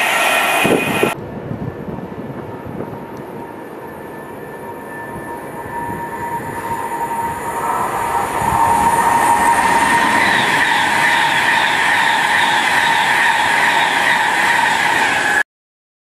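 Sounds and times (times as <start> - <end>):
high-speed train rushing past: 0.0 - 15.4
wheels clattering over rails: 5.8 - 15.4.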